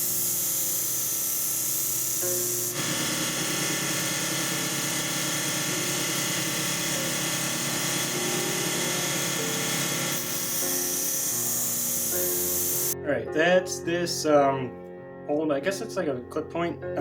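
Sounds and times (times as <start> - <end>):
power tool running: 0.0 - 13.0.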